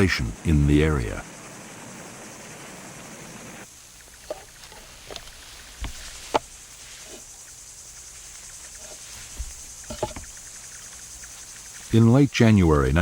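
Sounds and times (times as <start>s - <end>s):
insect chirring: 0.0s - 13.0s
sharp clicks and knocks: 9.4s - 10.3s.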